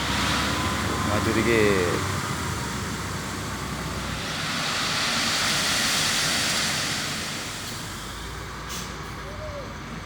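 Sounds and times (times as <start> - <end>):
sand pouring from dump truck: 3.3 - 9.0.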